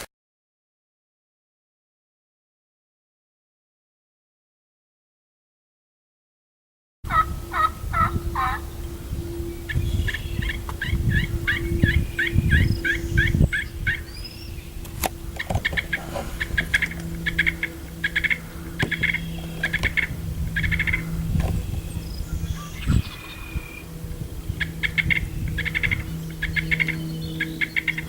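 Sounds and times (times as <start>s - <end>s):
turkey yelping: 7.1s - 8.6s, 15.4s - 21.1s
low rumbling noise: 7.1s - 28.0s.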